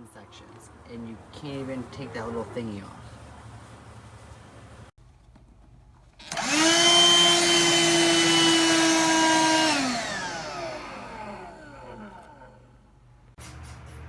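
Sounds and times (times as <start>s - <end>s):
handheld vacuum motor whining: 6.2s - 12.7s.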